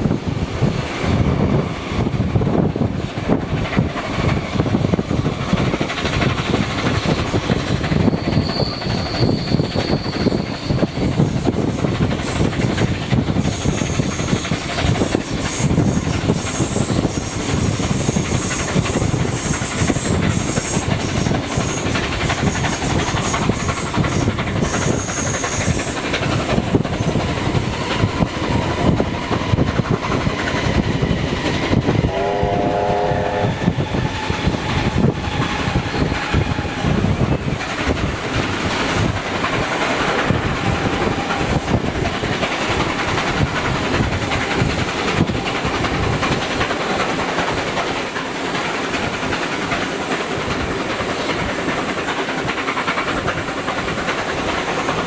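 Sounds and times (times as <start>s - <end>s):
train wheels clattering on rail: 0.0s - 32.1s, 33.6s - 55.0s
train whistle blast: 32.0s - 34.0s.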